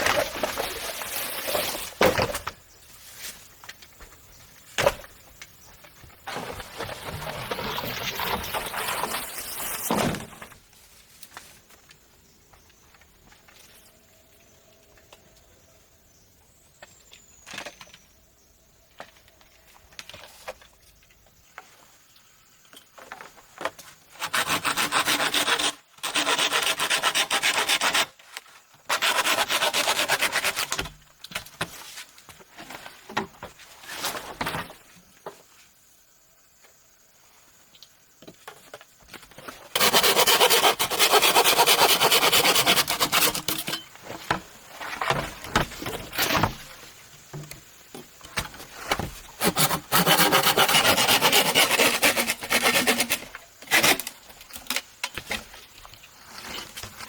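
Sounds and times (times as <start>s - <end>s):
hand saw cutting bamboo: 24.2s - 28.2s, 28.9s - 30.9s, 39.7s - 43.8s, 49.4s - 54.2s.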